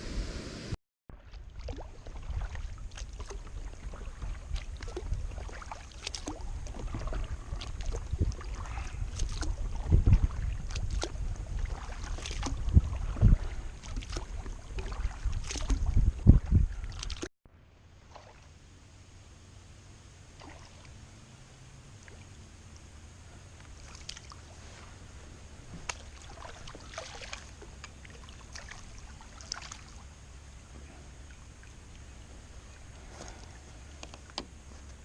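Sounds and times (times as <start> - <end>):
paddle splashing in water: 0.0 - 17.3, 18.0 - 18.6, 20.3 - 21.0, 23.6 - 30.2
wind rumbling on microphone: 0.0 - 17.3.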